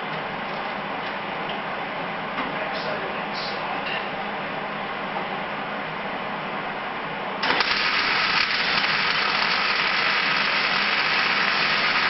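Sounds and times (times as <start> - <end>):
welding arc on sheet metal: 7.4 - 12.0.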